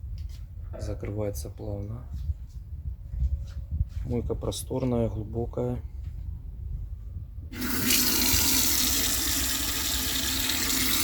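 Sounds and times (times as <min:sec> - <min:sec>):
faucet water running into sink: 0:07.6 - 0:11.0.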